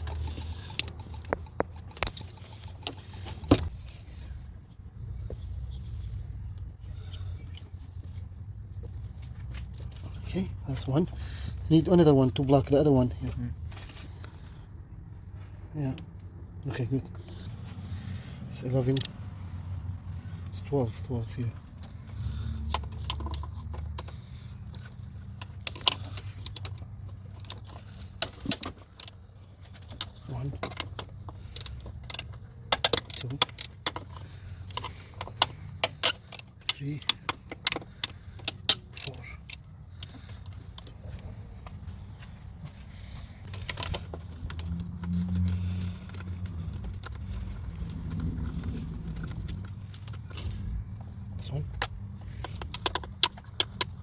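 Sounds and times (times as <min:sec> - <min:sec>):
steady low rumble: 0:03.0 - 0:54.0
metal tools clinking on engine parts: 0:17.3 - 0:19.5, 0:20.5 - 0:54.0.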